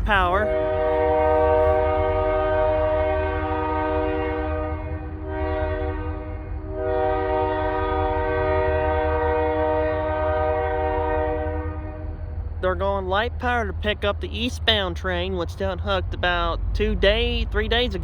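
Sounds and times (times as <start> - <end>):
locomotive air horn blasts: 0.0 - 12.2
locomotive engine rumble: 0.0 - 18.0.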